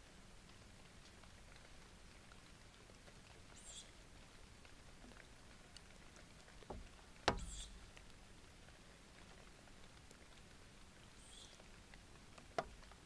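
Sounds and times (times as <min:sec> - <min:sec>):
thump and sharp knock: 0:06.7 - 0:07.7.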